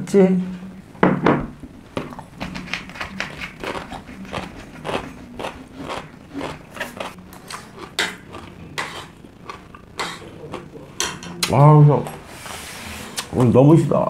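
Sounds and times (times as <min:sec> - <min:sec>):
crisp chewing crunches: 0:02.1 - 0:10.8.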